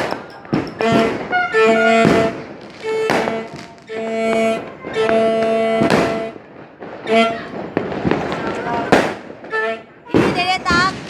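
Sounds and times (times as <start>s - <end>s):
steady pitched tone: 0.0s - 6.4s
fireworks bangs: 0.0s - 11.0s.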